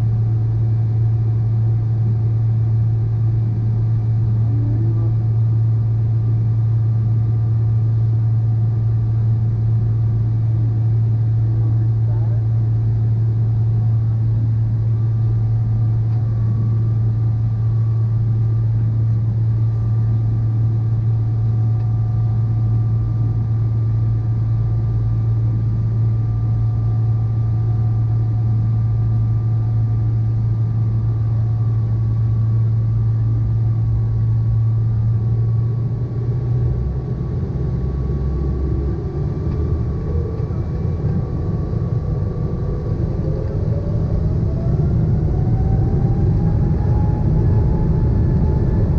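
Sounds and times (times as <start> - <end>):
jet engines running: 30.2 - 48.9.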